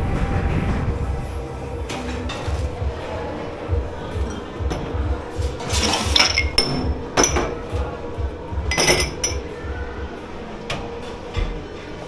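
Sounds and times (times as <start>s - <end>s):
dishes and glassware clinking: 1.9s - 9.9s.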